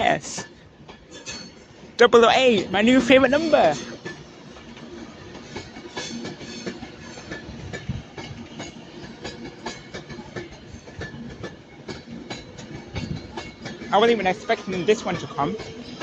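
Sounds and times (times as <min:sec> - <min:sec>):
train rumble: 0:00.0 - 0:16.0
train wheels clacking over rails: 0:00.0 - 0:16.0.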